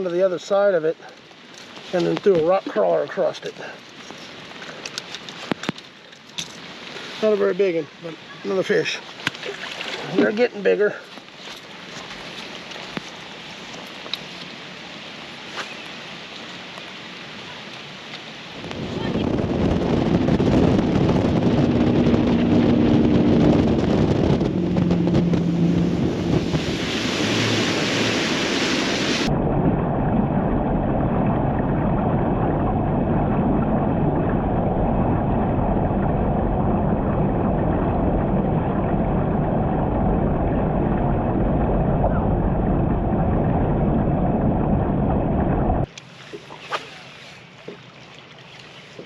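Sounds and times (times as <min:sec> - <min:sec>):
boat motor and water noise: 0:00.0 - 0:49.0
wind rushing over microphone: 0:18.5 - 0:45.9.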